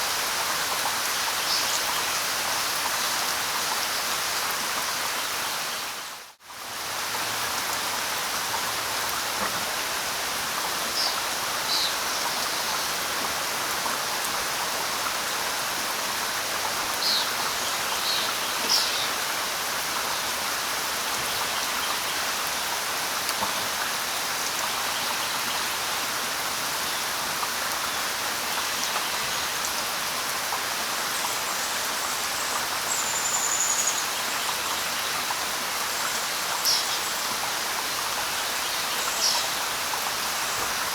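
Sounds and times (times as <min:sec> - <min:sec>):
light rain falling on leaves: 0:00.0 - 0:40.9.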